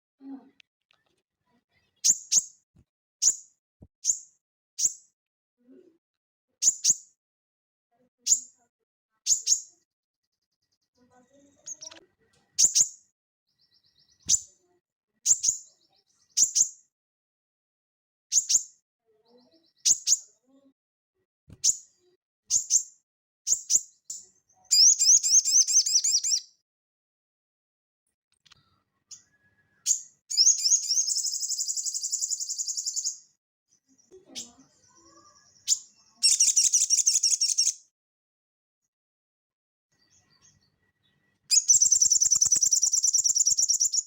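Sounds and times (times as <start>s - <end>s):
songbird chirping: 0.2s - 2.6s, 3.2s - 5.2s, 6.6s - 7.2s, 8.2s - 8.6s, 9.2s - 9.9s, 10.6s - 16.9s, 18.3s - 20.7s, 21.5s - 26.6s, 28.3s - 37.9s, 39.9s - 44.0s.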